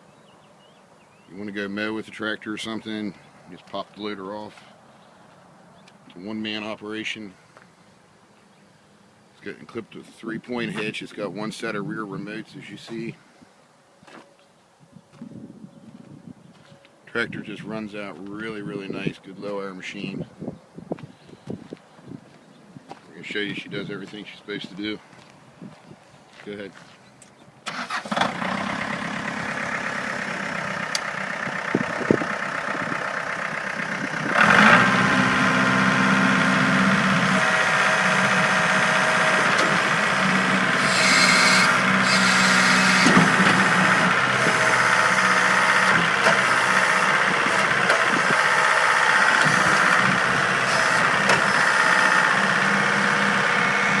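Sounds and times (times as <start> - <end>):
tractor diesel engine running: 27.7 - 54.0.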